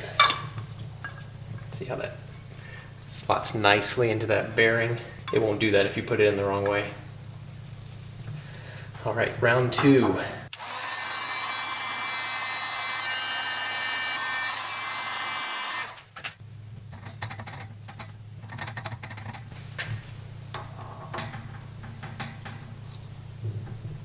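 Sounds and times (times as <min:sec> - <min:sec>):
heat gun whining: 0:10.5 - 0:16.1.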